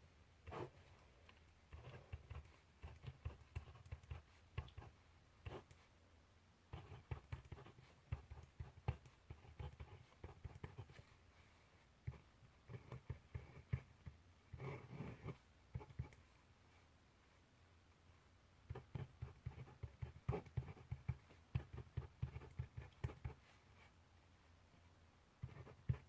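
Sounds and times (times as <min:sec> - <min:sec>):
pen scratching on paper: 0:00.5 - 0:00.8, 0:01.7 - 0:05.8, 0:06.7 - 0:11.2, 0:12.0 - 0:16.2, 0:18.6 - 0:23.5, 0:25.4 - 0:26.0.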